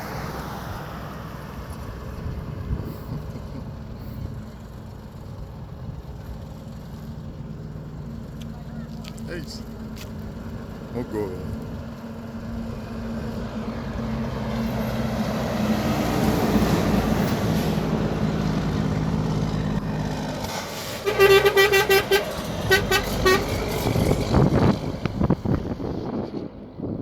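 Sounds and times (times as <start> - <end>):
short horn-like toots: 20.9 - 23.6.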